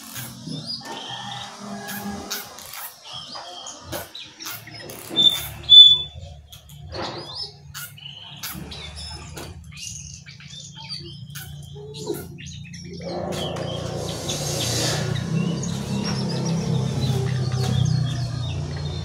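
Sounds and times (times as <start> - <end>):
songbird chirps and whistles: 3.1 - 19.0
rushing noise: 13.0 - 17.5.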